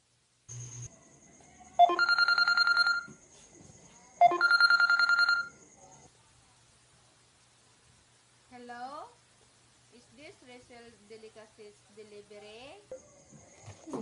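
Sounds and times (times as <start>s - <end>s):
telephone ringing: 1.8s - 3.2s, 4.2s - 5.6s.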